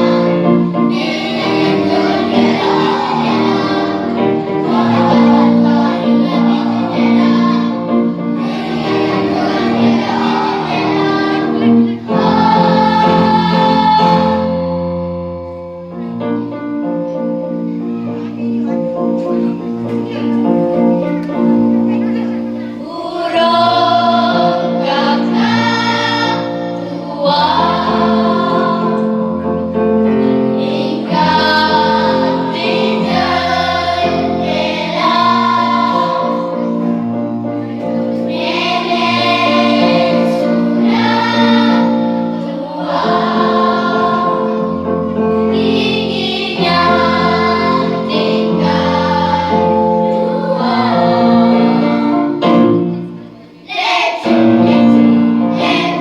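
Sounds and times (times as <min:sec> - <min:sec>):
choir singing: 0:00.0 - 0:16.3, 0:19.2 - 0:56.0.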